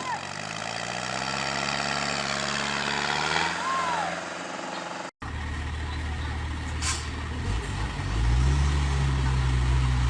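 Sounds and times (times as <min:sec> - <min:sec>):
heavy truck engine running: 0:00.0 - 0:10.0.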